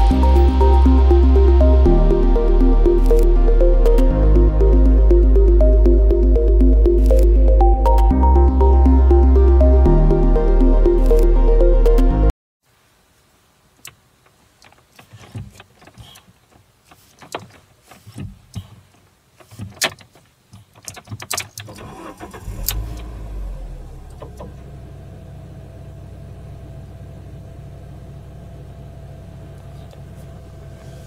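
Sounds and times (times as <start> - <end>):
car engine starting and idling: 0.0 - 11.2, 21.7 - 31.0
sharp clicks and knocks: 13.8 - 21.8.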